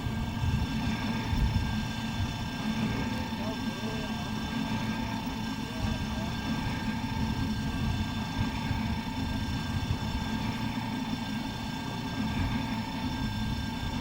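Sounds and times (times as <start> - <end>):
faint whining tones: 0.0 - 14.0.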